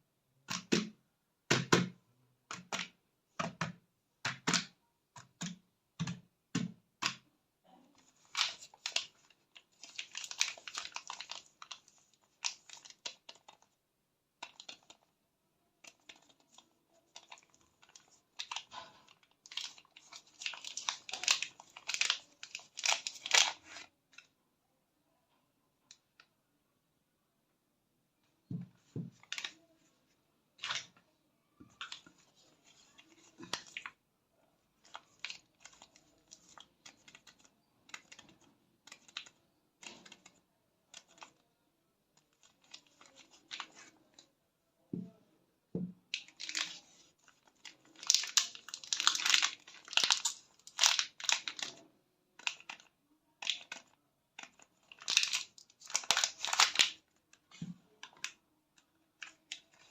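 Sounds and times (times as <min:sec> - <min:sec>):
wrappers tearing and crinkling: 0:08.2 - 0:13.6, 0:17.1 - 0:23.9, 0:46.2 - 0:51.8, 0:52.4 - 0:57.1.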